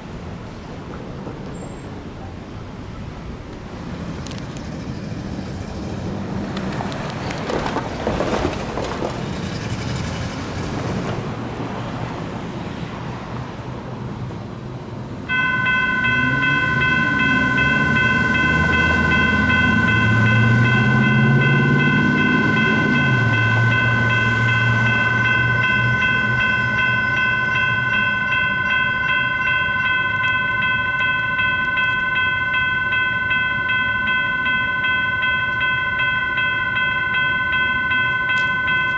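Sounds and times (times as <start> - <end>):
street traffic: 0.0 - 38.9
electronic crossing bell ringing: 15.3 - 38.9.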